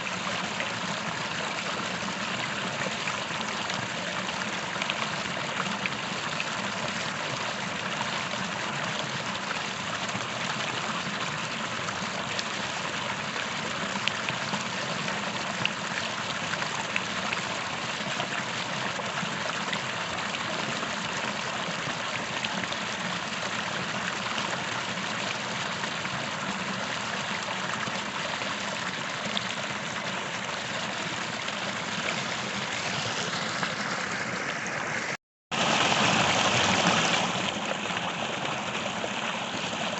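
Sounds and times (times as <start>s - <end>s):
creek flowing over stones: 0.0s - 39.9s
small water splashes: 11.4s - 39.9s.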